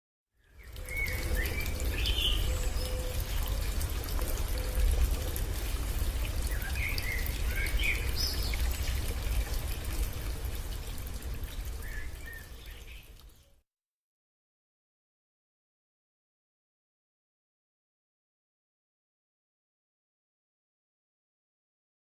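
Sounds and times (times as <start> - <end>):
songbirds chirping: 0.4 - 13.6.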